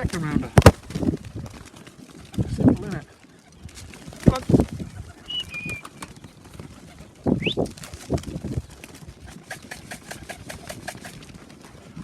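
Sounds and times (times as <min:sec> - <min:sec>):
pigeons cooing: 0:01.7 - 0:12.0
short high whistles: 0:05.3 - 0:05.9.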